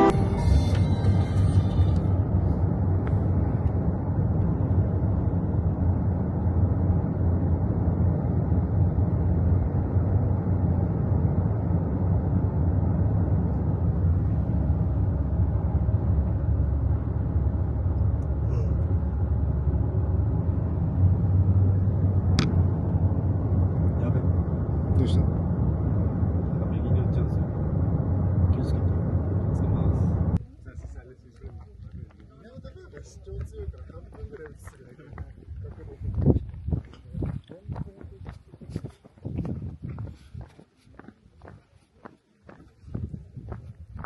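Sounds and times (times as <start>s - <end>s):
car road rumble inside cabin: 0.0s - 30.4s.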